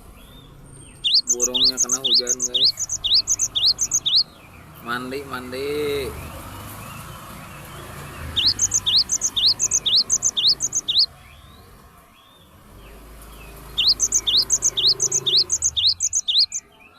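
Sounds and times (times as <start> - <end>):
bird singing whistled phrases: 0.9 - 4.3, 8.4 - 11.1, 13.8 - 16.7.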